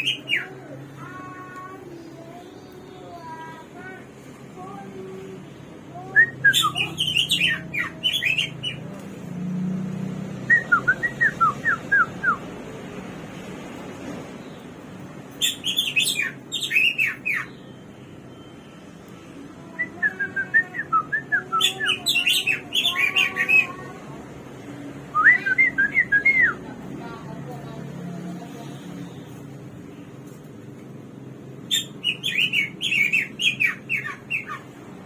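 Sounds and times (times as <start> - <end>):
songbird singing whistled notes: 6.0 - 8.8, 31.7 - 34.6.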